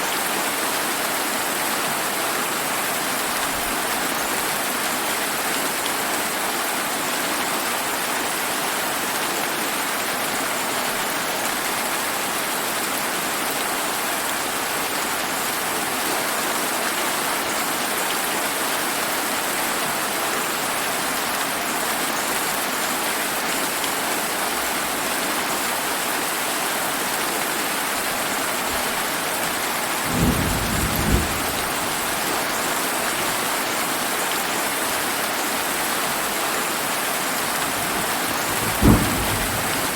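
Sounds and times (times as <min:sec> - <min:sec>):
rain hissing: 0:30.0 - 0:32.8, 0:37.2 - 0:39.9
low thunder clap: 0:30.1 - 0:32.2, 0:37.6 - 0:39.9.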